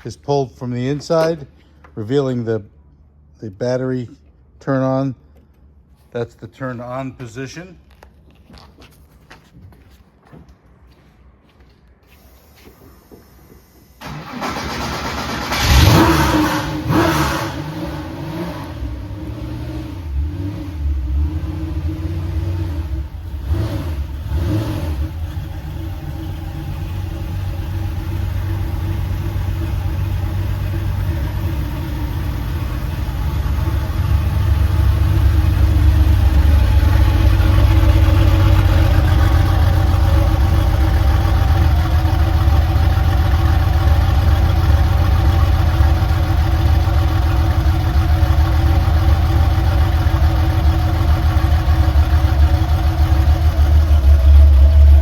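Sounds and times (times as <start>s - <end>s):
car engine starting revving and idling: 14.0s - 55.0s.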